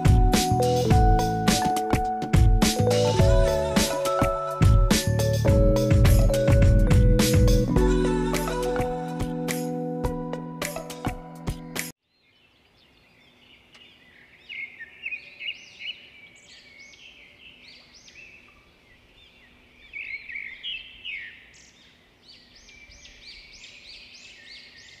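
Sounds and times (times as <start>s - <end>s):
birds chirping and singing: 11.5s - 25.0s.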